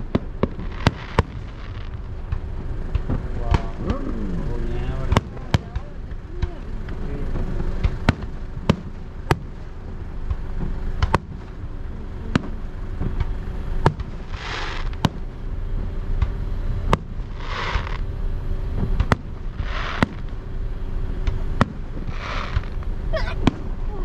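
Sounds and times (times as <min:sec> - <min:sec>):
fireworks hissing: 0:00.0 - 0:06.0, 0:06.6 - 0:15.6, 0:16.6 - 0:24.0
fireworks shells bursting: 0:12.4 - 0:15.3, 0:16.9 - 0:18.1, 0:18.8 - 0:20.5, 0:21.2 - 0:23.9.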